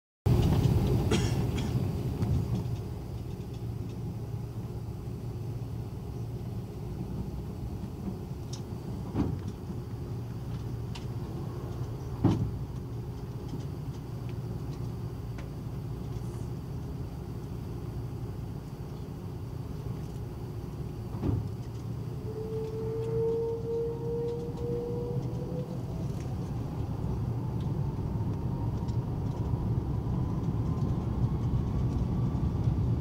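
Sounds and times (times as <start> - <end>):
airliner cabin hum: 0.3 - 33.0.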